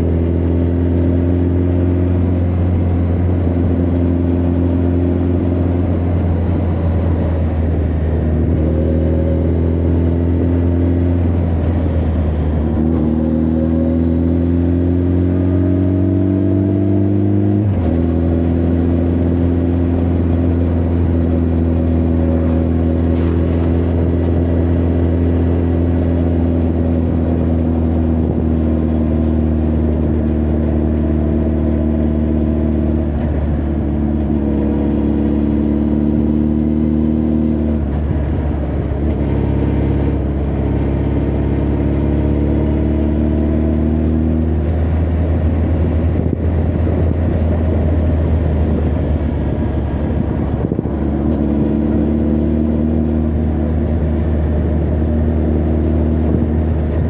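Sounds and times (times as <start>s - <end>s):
motorcycle engine and exhaust cruising: 0.0s - 57.0s.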